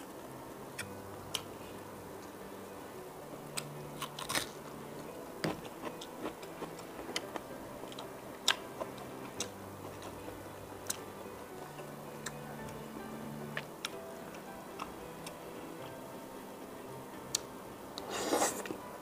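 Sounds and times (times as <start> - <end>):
person chewing food: 3.5 - 4.7, 5.4 - 11.1.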